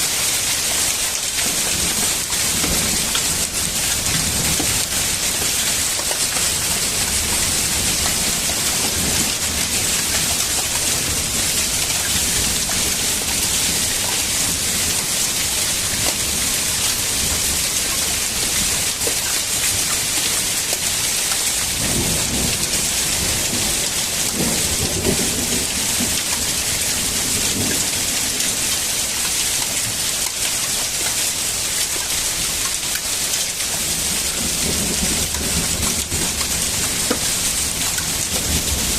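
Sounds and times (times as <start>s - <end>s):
heavy rain and hail: 0.0s - 38.9s.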